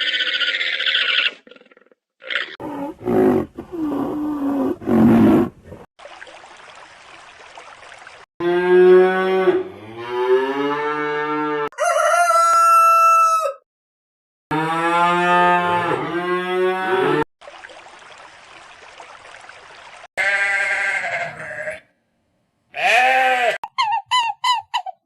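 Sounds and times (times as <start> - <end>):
rooster crowing: 11.7 - 13.6.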